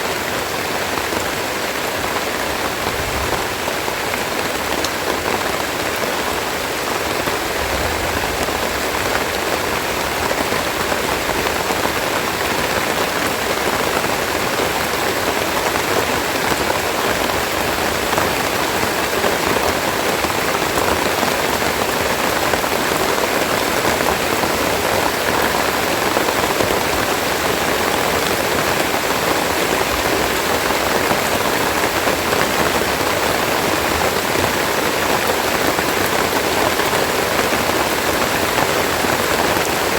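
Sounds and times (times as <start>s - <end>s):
heavy rain pattering on leaves: 0.0s - 39.9s.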